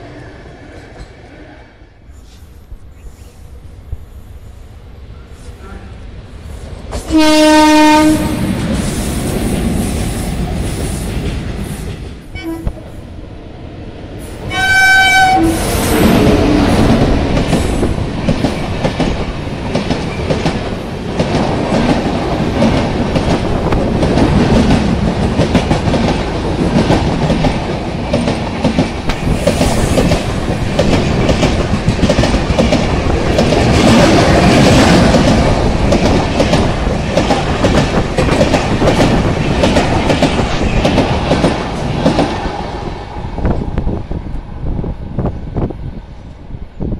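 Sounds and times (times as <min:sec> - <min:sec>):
train coaches rumbling: 0:00.0 - 0:46.9
train horn blast: 0:07.1 - 0:08.5, 0:12.4 - 0:12.8, 0:14.5 - 0:16.9.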